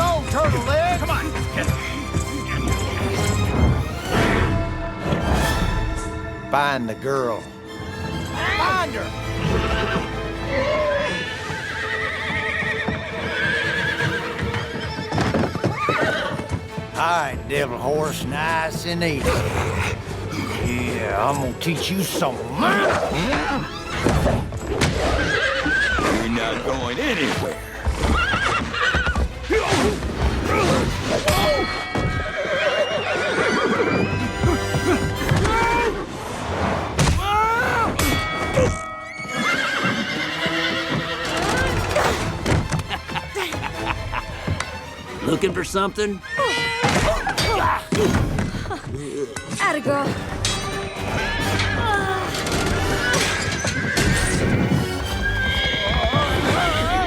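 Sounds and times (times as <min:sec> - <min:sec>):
hoofbeats: 0:00.0 - 0:04.4, 0:08.1 - 0:36.1, 0:38.1 - 0:57.0
hooves clattering: 0:00.0 - 0:04.4, 0:07.9 - 0:36.1, 0:38.0 - 0:57.0
background music: 0:00.0 - 0:57.0
horse whinnying: 0:08.3 - 0:16.6, 0:22.6 - 0:36.0, 0:38.6 - 0:43.7, 0:46.2 - 0:49.5, 0:51.1 - 0:57.0.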